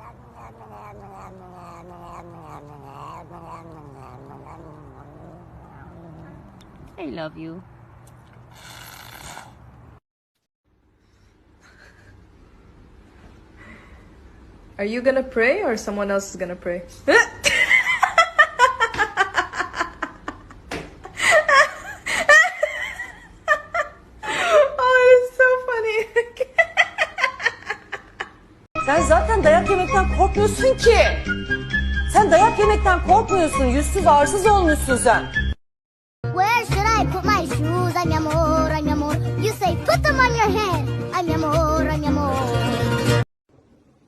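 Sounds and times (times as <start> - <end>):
cat yowling: 0.0 - 6.8.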